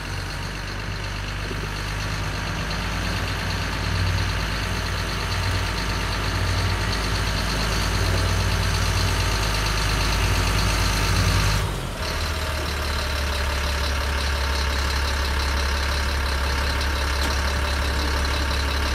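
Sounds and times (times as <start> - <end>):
truck engine idling: 0.0 - 18.9.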